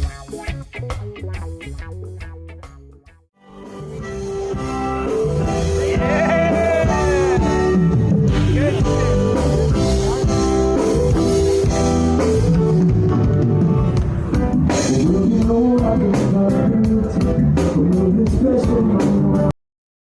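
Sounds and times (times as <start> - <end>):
reggae band with singing: 0.0 - 2.2, 4.1 - 12.9, 14.4 - 19.5.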